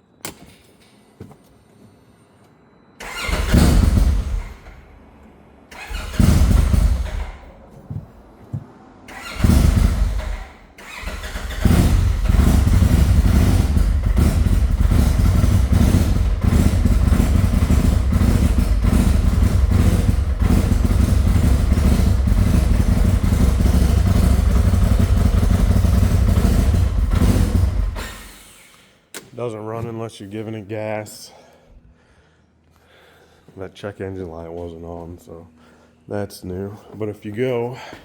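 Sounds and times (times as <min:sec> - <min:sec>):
engine starting and misfiring: 0:03.0 - 0:04.9, 0:05.7 - 0:07.6, 0:09.1 - 0:28.9.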